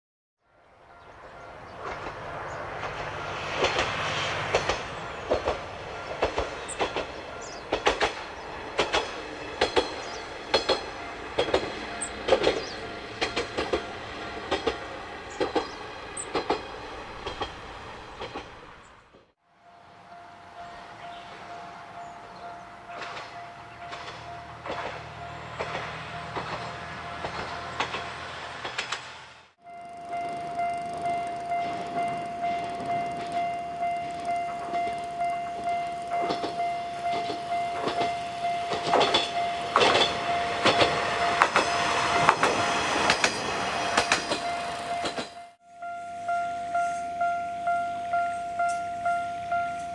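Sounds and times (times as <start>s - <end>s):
diesel railcar engine running: 0.8s - 49.9s
train wheels clacking over rail joints: 1.8s - 19.3s, 22.9s - 29.3s, 30.0s - 45.6s
thin steady tone: 29.7s - 38.8s.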